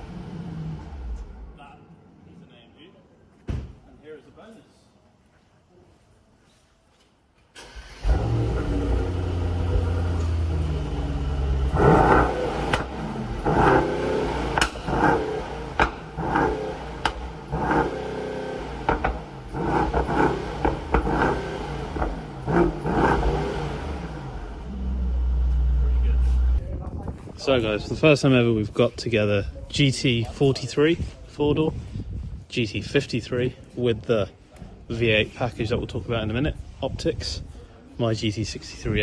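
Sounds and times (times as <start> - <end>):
car engine starting: 0.0 - 1.6, 7.5 - 26.6
car engine idling: 7.8 - 26.6
engine revving in throttle blips: 7.9 - 26.6
sharp exhaust cracks: 11.3 - 26.6.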